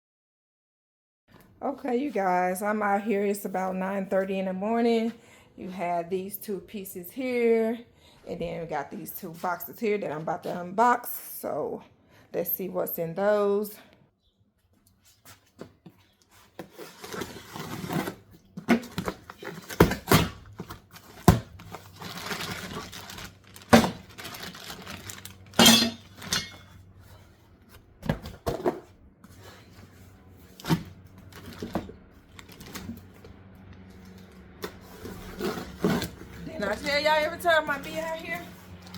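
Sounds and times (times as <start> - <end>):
cardboard and packing rustling: 14.8 - 38.9.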